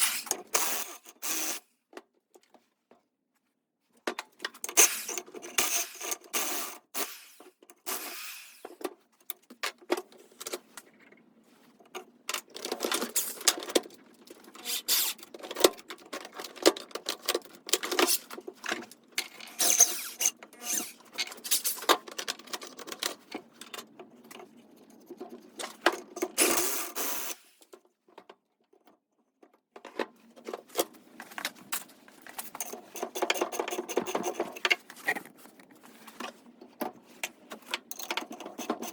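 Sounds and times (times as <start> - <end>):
metal tools clinking and scraping: 17.2 - 23.0.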